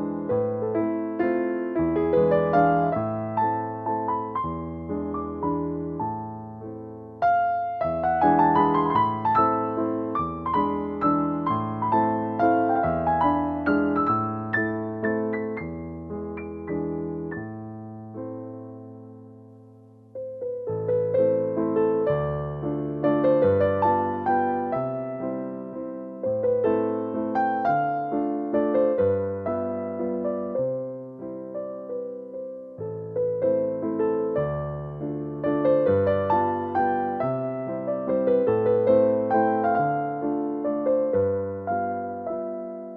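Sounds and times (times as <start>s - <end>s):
electric piano slow melody: 0.0s - 42.9s.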